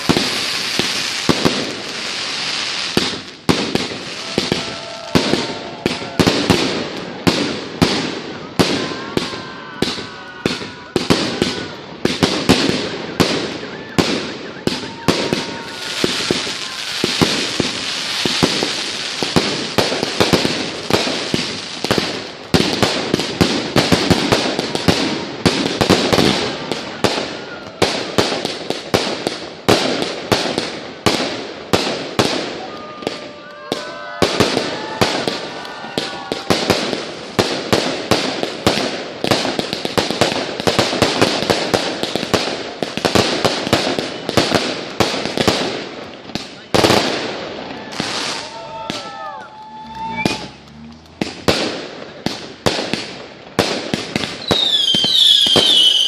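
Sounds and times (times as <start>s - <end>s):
fireworks crackling: 0.0s - 56.0s
firework shells bursting: 47.8s - 56.0s.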